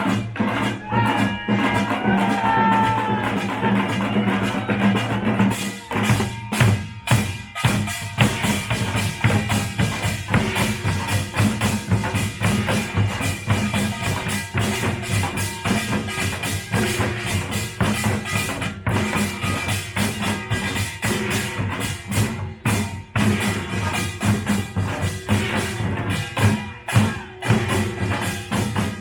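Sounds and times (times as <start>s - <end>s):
percussion band drumming: 0.0s - 29.0s
ringing metal gongs: 4.2s - 29.0s.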